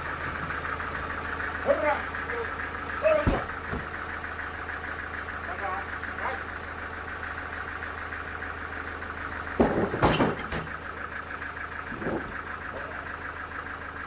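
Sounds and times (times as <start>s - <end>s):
engine idling: 0.0s - 14.0s
sharp knocks: 3.2s - 3.9s, 9.6s - 10.7s.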